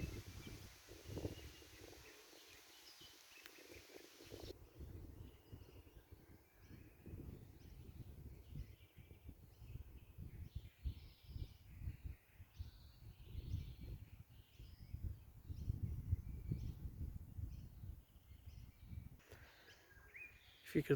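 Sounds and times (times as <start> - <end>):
bird calls: 0.0 - 4.5, 18.6 - 20.9
wind gusting against microphone: 0.0 - 20.6.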